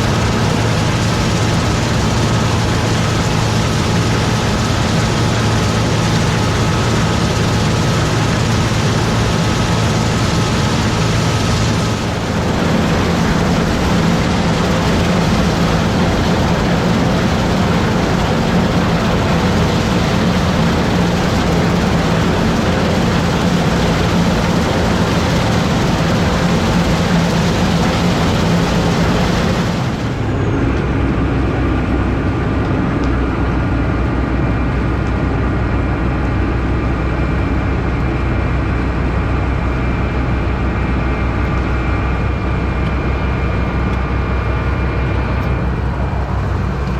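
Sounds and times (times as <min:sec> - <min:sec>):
high thin whines: 0:00.0 - 0:30.6
combine harvester running: 0:00.0 - 0:46.9.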